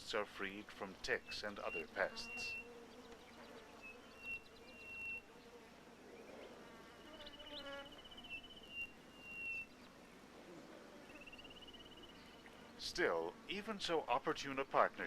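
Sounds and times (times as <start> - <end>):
high thin trilling calls: 1.2 - 5.3, 7.2 - 9.8.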